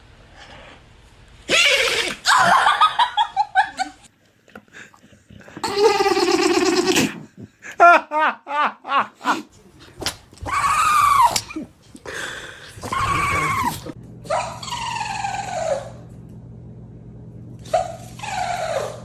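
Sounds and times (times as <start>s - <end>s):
low steady hum: 9.5s - 18.6s
dog whining: 10.4s - 11.7s, 12.8s - 16.1s, 17.6s - 19.0s.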